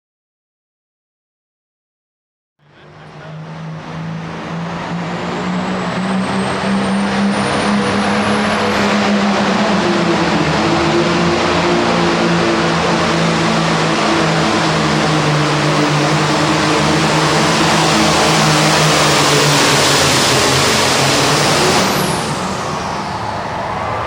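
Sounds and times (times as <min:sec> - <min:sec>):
tractor diesel engine revving: 0:02.6 - 0:24.0.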